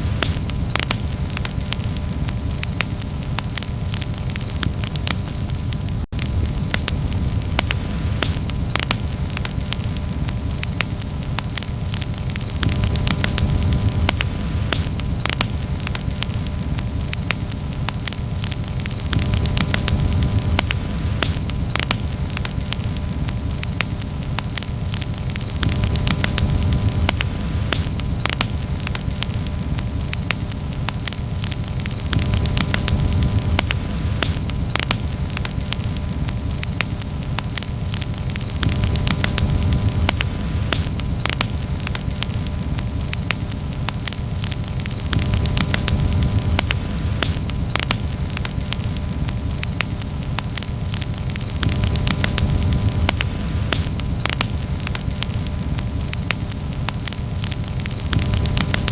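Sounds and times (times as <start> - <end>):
campfire crackling and popping: 0.0 - 58.9
low rumble of flames: 0.0 - 58.9.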